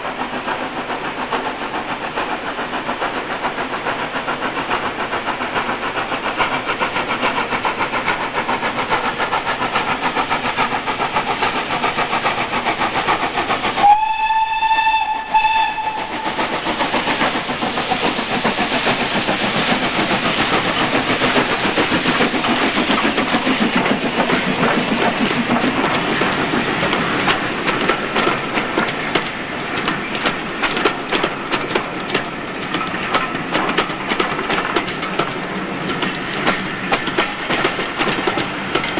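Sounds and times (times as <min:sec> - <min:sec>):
steam locomotive exhaust beats: 0:00.0 - 0:38.9
train wheels clicking on rail joints: 0:00.0 - 0:38.9
steam whistle: 0:13.8 - 0:16.2.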